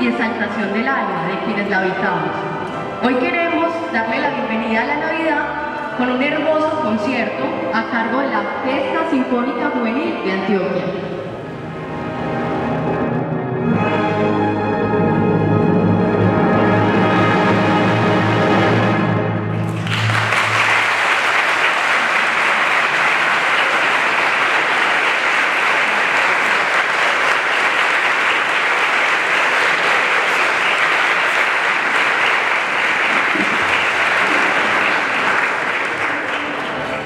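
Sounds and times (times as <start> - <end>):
audience clapping: 19.5 - 37.0.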